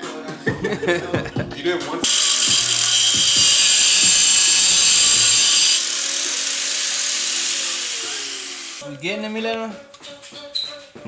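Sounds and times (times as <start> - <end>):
angle grinder whining: 2.0 - 8.8.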